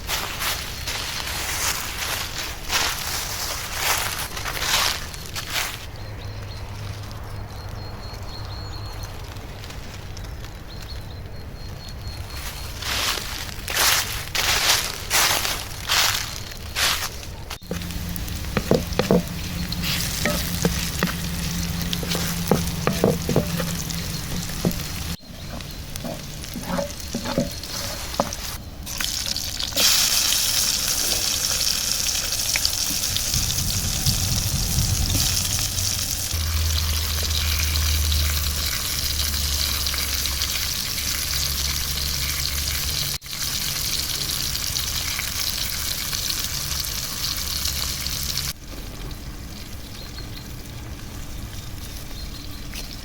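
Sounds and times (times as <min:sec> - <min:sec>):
vegetables sizzling in a pan: 0:17.6 - 0:48.6
utensil knocking and clinking: 0:17.7 - 0:28.5.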